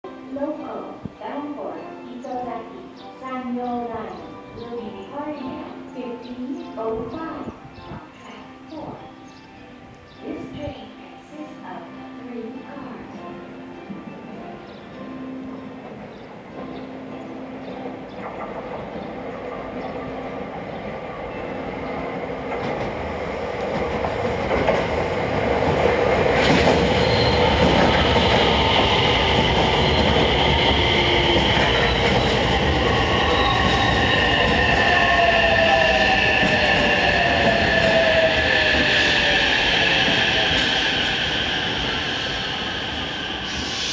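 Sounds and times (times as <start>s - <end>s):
electric train passing: 9.0s - 43.9s
high falling train squeal: 26.4s - 43.9s.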